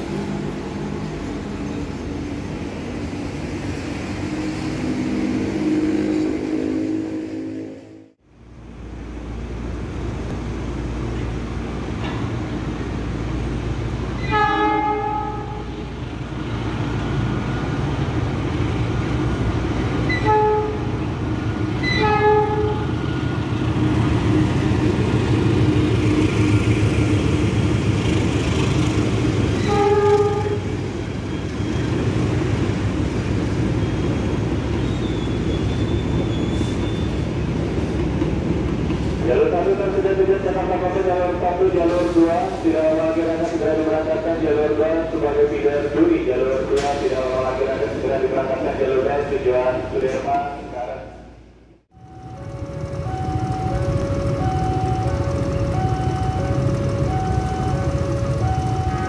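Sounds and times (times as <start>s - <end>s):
train rumbling: 0.0s - 59.0s
train horn blasts: 14.2s - 15.8s, 20.1s - 21.0s, 21.8s - 23.0s, 29.6s - 30.7s, 58.7s - 59.0s.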